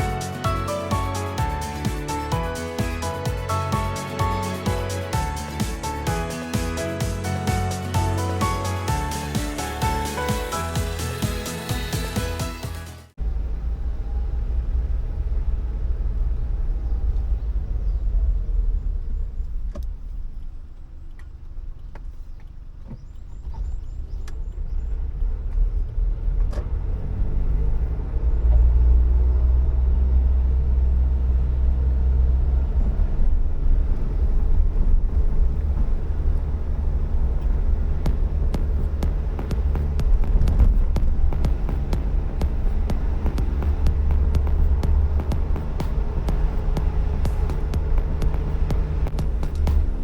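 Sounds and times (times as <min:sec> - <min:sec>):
car engine and road noise: 0:00.0 - 0:50.0.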